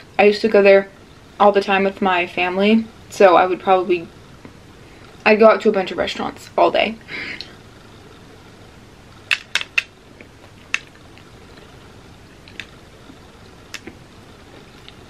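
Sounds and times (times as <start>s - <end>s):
crisp clicks: 9.3s - 11.7s, 12.4s - 12.8s, 13.7s - 14.0s.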